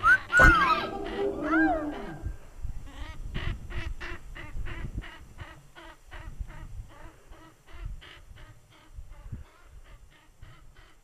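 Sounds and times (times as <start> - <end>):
bird honking calls: 0.0 - 2.4.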